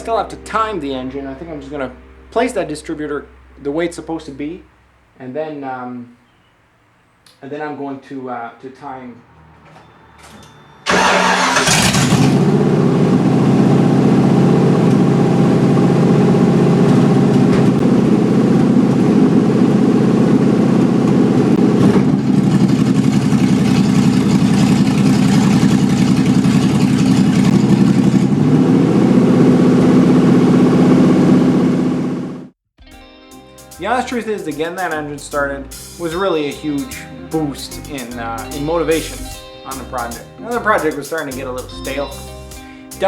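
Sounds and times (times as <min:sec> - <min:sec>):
engine idling loudly: 0:10.9 - 0:32.5.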